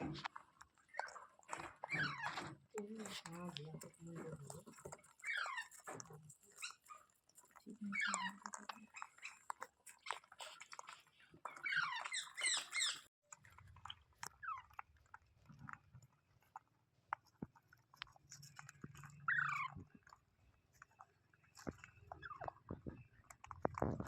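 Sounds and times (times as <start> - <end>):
small clicks and crunches: 0.0 - 24.0
parrot chattering calls: 11.6 - 13.1.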